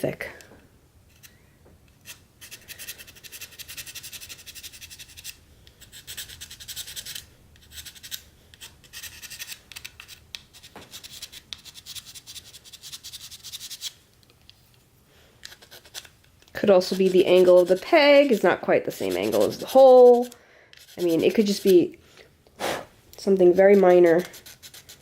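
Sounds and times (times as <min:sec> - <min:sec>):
file rasping on plastic: 0:19.0 - 0:21.8, 0:24.0 - 0:25.0.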